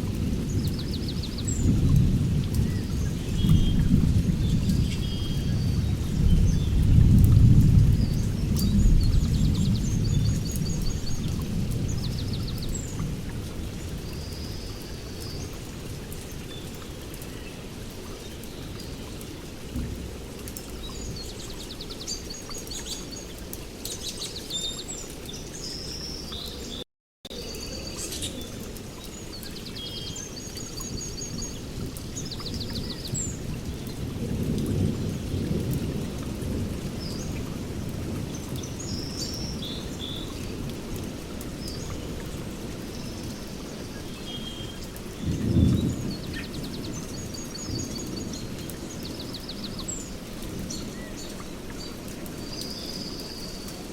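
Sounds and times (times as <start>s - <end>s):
thunder rumble: 0.0s - 14.4s, 45.0s - 49.9s
heavy rain: 0.0s - 53.9s.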